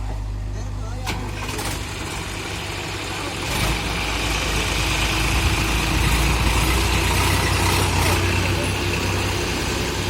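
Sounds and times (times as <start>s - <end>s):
heavy diesel engine running: 0.0s - 10.0s.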